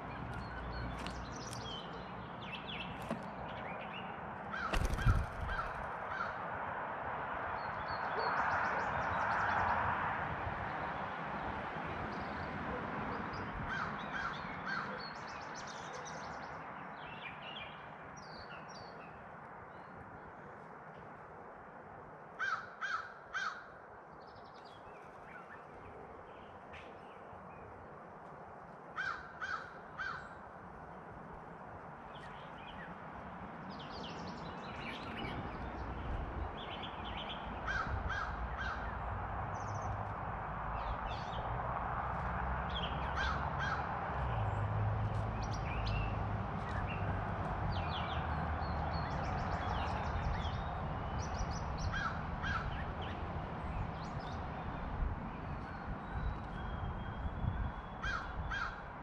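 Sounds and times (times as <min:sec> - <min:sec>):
small birds chirping: 0:00.0 - 0:05.9
crow cawing: 0:04.5 - 0:06.4, 0:22.4 - 0:23.7, 0:29.0 - 0:30.2, 0:37.6 - 0:38.9, 0:52.0 - 0:52.7, 0:58.0 - 0:58.9.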